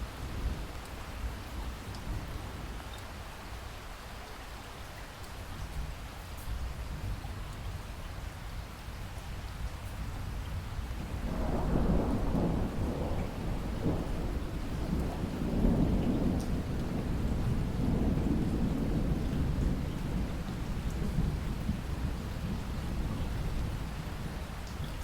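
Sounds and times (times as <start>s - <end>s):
steady rain: 0.0s - 25.0s
thunder rumbling: 11.0s - 25.0s.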